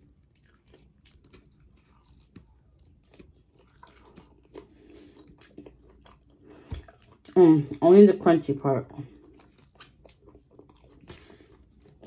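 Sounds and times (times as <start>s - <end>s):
faint chewing and crunching: 0.0s - 12.0s.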